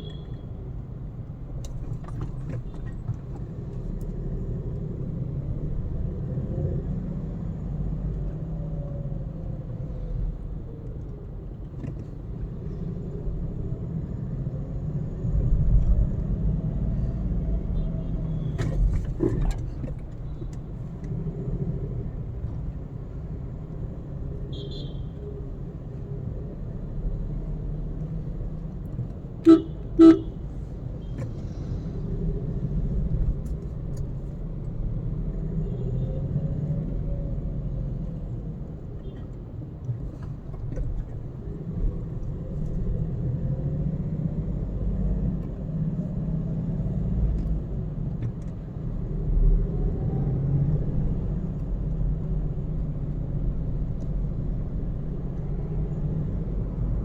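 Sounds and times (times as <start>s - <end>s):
car engine rumble: 0.0s - 57.0s
car horn toots: 29.4s - 30.4s.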